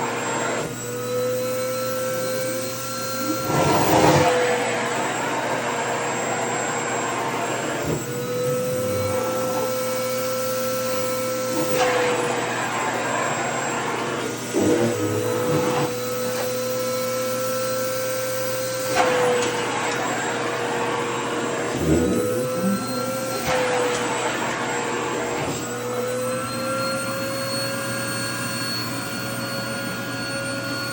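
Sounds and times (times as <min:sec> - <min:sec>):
vacuum cleaner running: 0:00.0 - 0:30.9.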